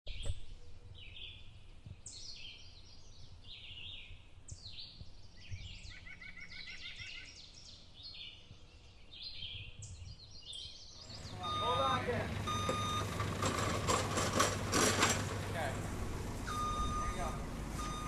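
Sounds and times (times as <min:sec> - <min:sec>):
songbirds singing: 0:02.0 - 0:18.0
low outdoor rumble: 0:11.0 - 0:18.0.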